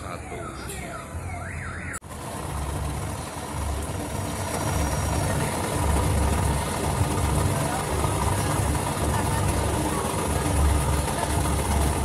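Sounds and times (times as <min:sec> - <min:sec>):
electronic siren-like sweeps: 0:00.0 - 0:02.0, 0:04.4 - 0:05.7.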